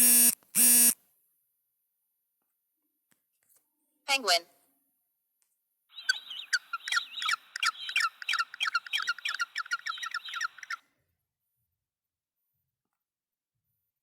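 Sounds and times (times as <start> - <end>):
penguin squeaky chirps: 5.9 - 10.8.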